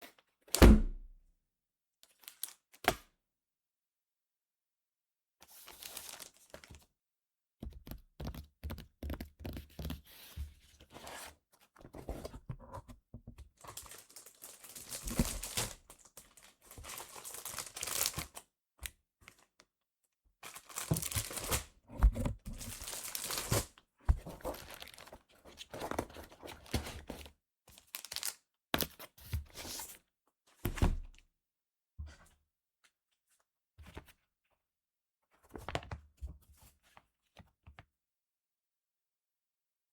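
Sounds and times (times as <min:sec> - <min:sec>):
packaging tearing and crinkling: 0:13.8 - 0:15.8, 0:16.8 - 0:18.4, 0:20.5 - 0:21.7, 0:22.5 - 0:23.7.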